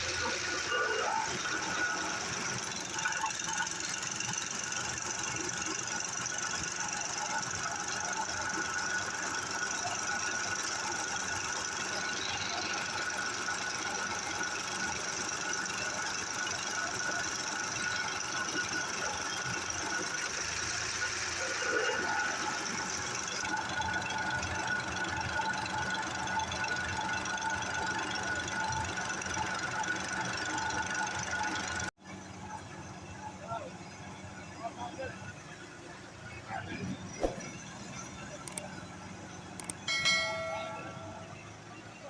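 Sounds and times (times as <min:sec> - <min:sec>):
diesel engine knocking: 0:00.0 - 0:31.9.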